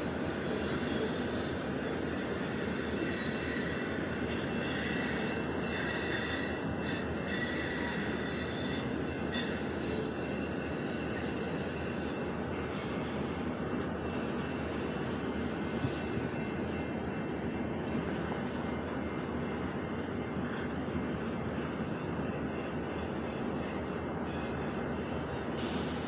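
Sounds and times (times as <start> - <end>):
train rumbling past: 0.0 - 26.0
wheel squeals: 0.3 - 13.6.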